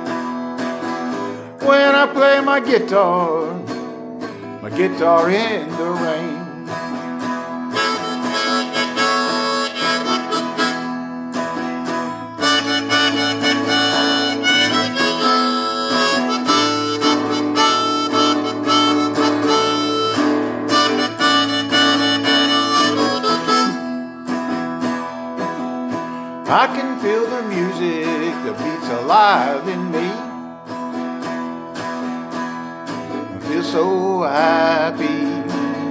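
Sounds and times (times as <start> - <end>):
guitar accompaniment: 0.0 - 35.9
blues harmonica solo: 6.9 - 25.1.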